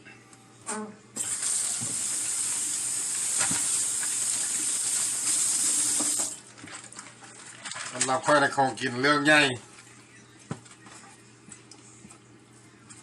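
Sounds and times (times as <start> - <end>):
water running from a tap: 1.2 - 6.3.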